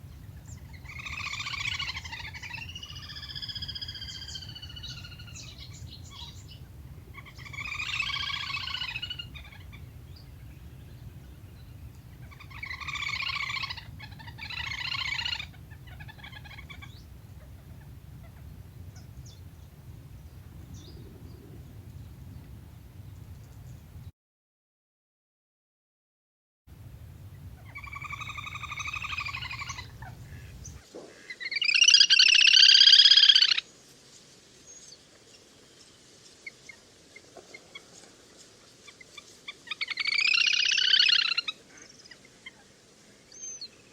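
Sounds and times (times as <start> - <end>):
bird trilling calls: 0.0 - 23.8, 27.2 - 33.6, 38.9 - 42.7
low hum: 0.0 - 24.1.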